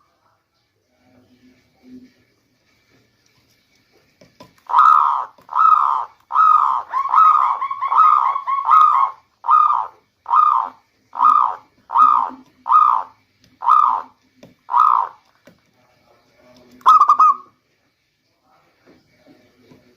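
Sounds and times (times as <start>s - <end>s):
dove cooing: 4.7s - 15.2s, 16.8s - 17.5s.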